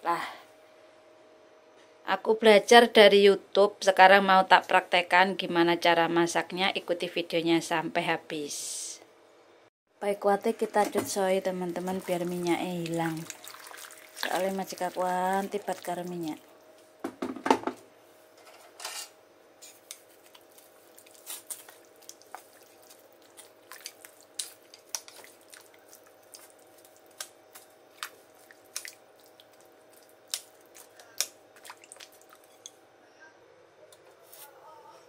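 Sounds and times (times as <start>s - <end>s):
stirring in water: 10.8s - 16.6s, 19.8s - 32.8s.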